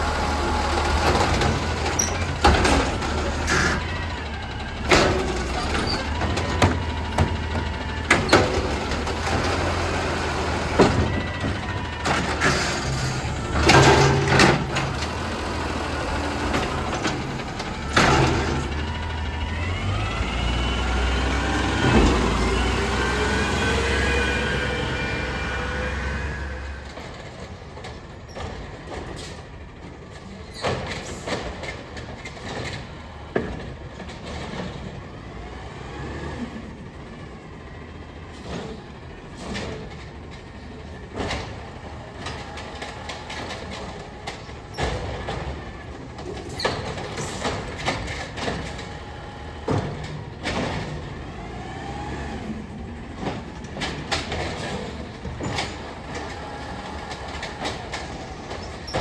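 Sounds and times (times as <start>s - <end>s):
garbage truck diesel engine: 0.0s - 59.0s
metallic clanks and bangs: 52.3s - 59.0s.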